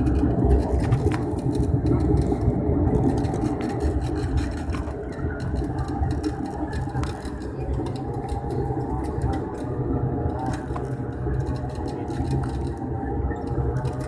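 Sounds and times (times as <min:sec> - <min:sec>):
airliner engine rumble: 0:00.0 - 0:14.0.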